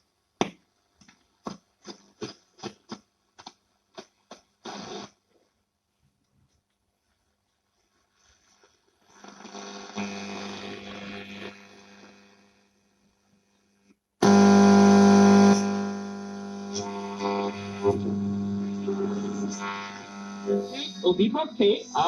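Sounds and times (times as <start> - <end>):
faint radio broadcast: 4.0 - 5.2, 16.6 - 22.0
radio mains hum: 9.0 - 12.7, 14.2 - 22.0.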